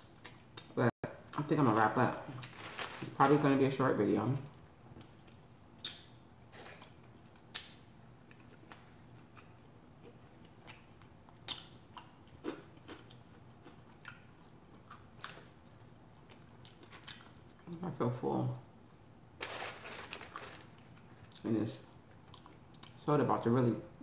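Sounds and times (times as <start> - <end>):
person chewing fries: 4.9 - 17.7, 18.6 - 21.5, 22.1 - 23.0
mouth clicks and smacks: 5.8 - 6.1.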